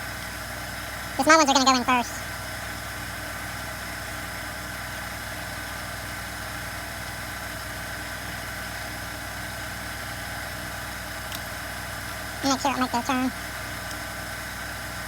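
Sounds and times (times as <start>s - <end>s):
steady background hum: 1.1s - 2.4s, 12.4s - 14.0s.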